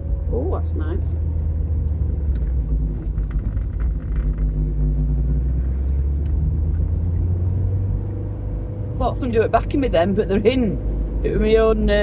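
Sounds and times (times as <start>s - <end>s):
car engine running: 0.0s - 12.0s
tyre and road rumble: 0.0s - 12.0s.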